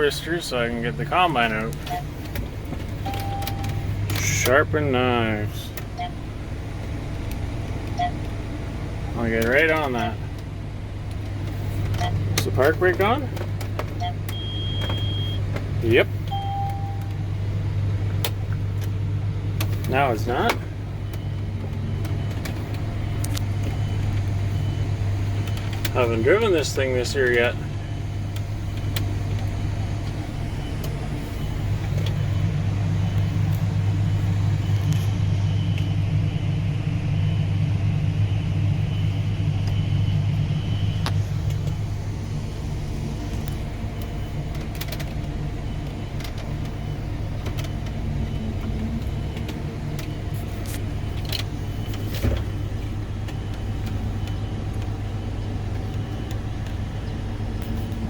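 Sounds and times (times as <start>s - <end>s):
farm machine engine running: 0.0s - 58.0s.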